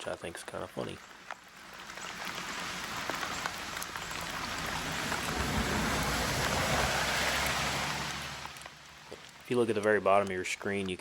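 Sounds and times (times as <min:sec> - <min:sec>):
raindrop ticks: 0:00.1 - 0:11.0
rain hissing: 0:01.0 - 0:10.9
low rumble: 0:02.4 - 0:09.3.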